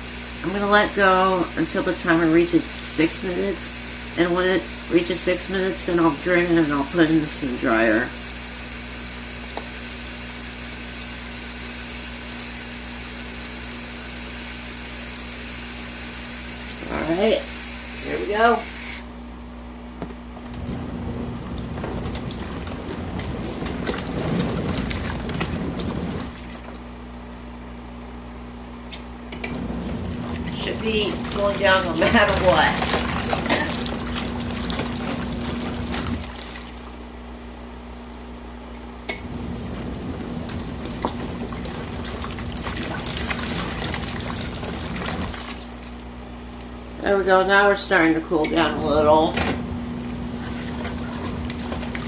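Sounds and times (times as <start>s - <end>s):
washing machine motor humming: 0.0s - 52.0s
water splashing into tub: 21.2s - 27.1s, 29.7s - 37.1s, 39.4s - 46.7s, 49.4s - 52.0s.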